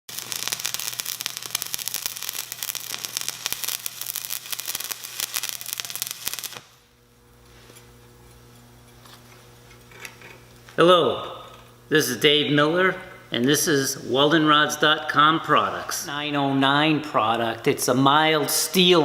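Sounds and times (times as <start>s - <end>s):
welding arc crackling: 0.0s - 12.4s.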